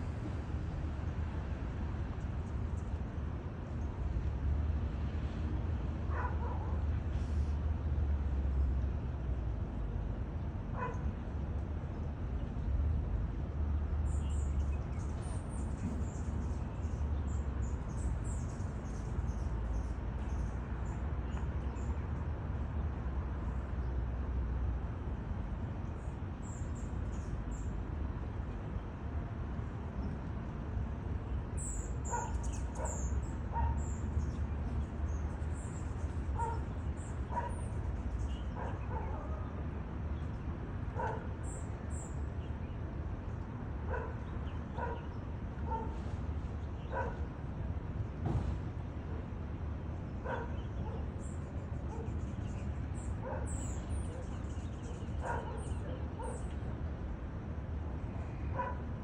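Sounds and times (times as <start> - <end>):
small birds chirping: 50.3 - 56.6.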